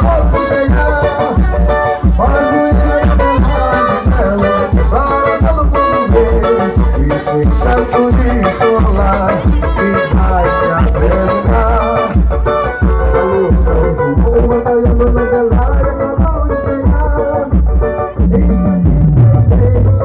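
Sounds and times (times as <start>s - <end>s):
festive folk music: 0.0s - 20.0s
low drum beat: 0.0s - 20.0s.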